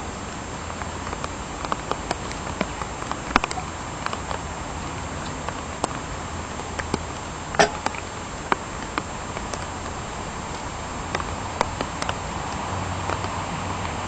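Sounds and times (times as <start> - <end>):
light rain falling: 0.0 - 14.0
sharp ticks and cracks: 0.7 - 4.5, 5.2 - 14.0.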